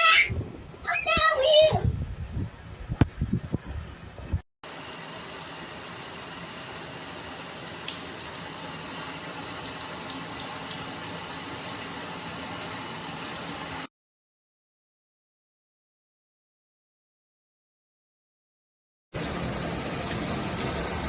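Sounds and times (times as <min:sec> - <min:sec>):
shower water spraying: 0:04.6 - 0:13.9, 0:19.2 - 0:21.0.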